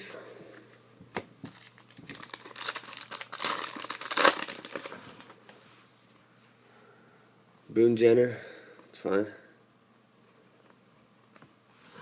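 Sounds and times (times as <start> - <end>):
foil wrapper crinkling and tearing: 1.5 - 5.4.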